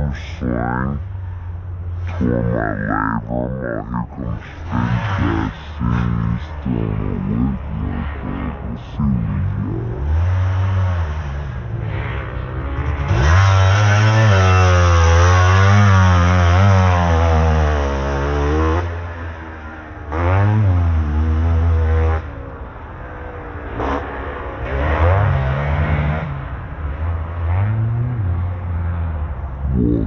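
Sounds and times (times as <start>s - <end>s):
distant motorbikes: 0.0s - 30.0s
dirt bike engine revving: 12.7s - 19.0s.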